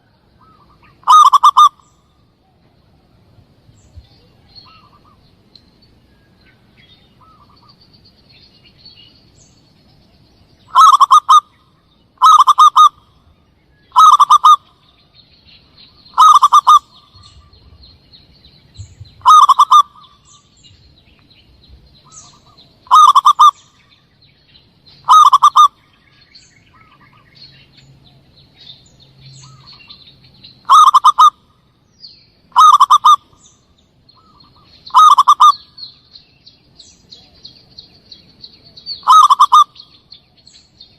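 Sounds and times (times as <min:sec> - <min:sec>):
dove cooing: 0:00.0 - 0:01.9, 0:10.7 - 0:11.5, 0:12.2 - 0:13.0, 0:13.9 - 0:14.7, 0:16.1 - 0:17.6, 0:19.2 - 0:20.3, 0:22.0 - 0:23.8, 0:25.0 - 0:25.8, 0:30.6 - 0:31.4, 0:32.5 - 0:33.4, 0:34.2 - 0:35.7, 0:39.0 - 0:39.8
small birds chirping: 0:00.0 - 0:40.9.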